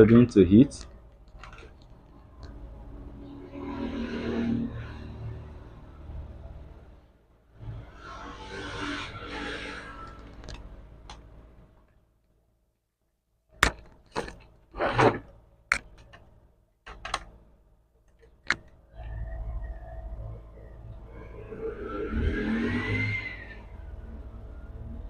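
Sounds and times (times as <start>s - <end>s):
tool scraping: 7.9s - 10.4s
tools clicking and knocking: 15.7s - 17.4s.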